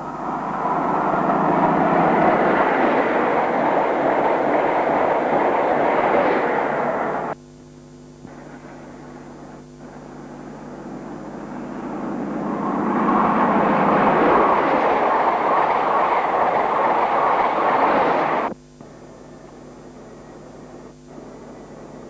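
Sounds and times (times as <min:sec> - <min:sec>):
trains passing at speed: 0:00.0 - 0:07.4, 0:08.3 - 0:18.6.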